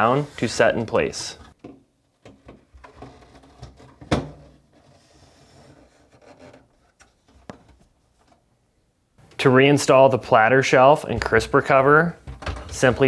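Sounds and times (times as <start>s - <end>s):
plastic part rubbing and scraping: 0.0s - 1.6s, 2.8s - 7.5s.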